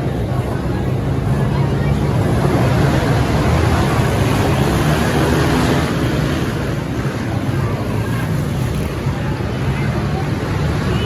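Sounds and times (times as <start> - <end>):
pit bike engines running: 0.0 - 11.0.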